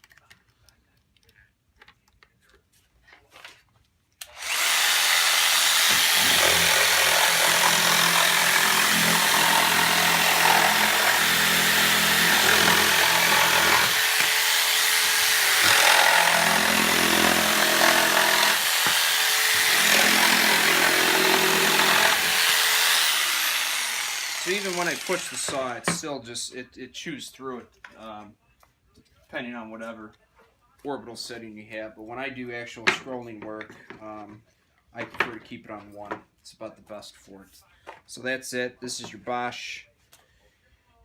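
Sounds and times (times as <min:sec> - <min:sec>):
jigsaw cutting wood: 0:04.2 - 0:26.0.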